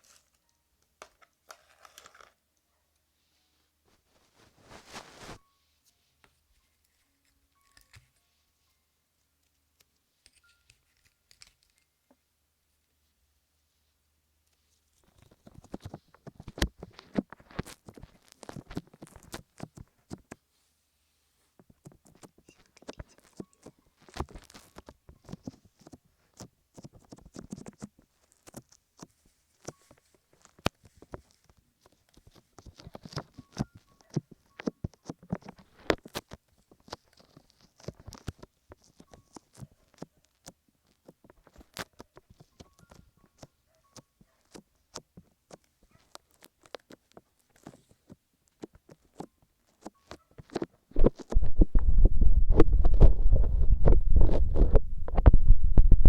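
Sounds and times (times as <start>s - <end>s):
fingers rubbing lotion on microphone: 3.9s - 5.4s, 21.8s - 29.8s, 47.6s - 56.0s.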